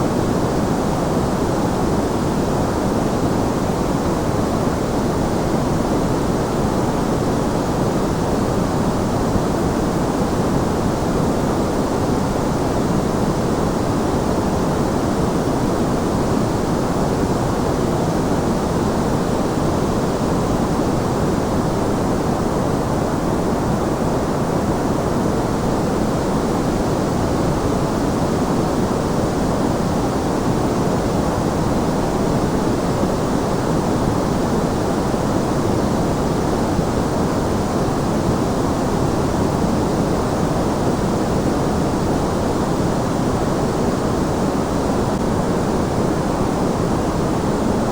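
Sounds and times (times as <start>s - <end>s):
white noise hiss: 0.0s - 47.9s.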